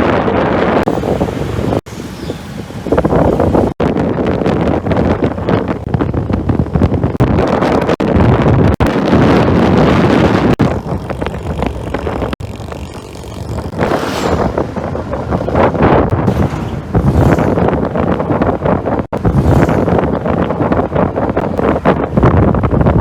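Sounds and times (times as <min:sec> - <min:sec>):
wind rushing over microphone: 0:00.0 - 0:23.0
scooter engine: 0:00.9 - 0:03.7, 0:10.2 - 0:22.0.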